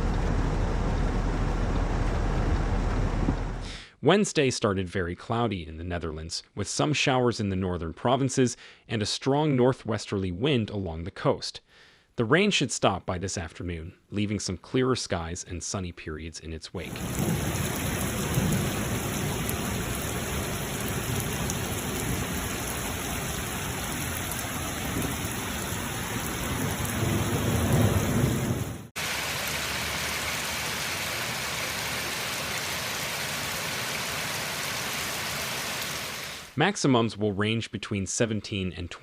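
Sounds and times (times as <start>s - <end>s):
heavy rain pouring: 0.0s - 3.6s, 16.9s - 36.6s
thunder rumbling: 0.0s - 3.6s, 16.9s - 28.9s.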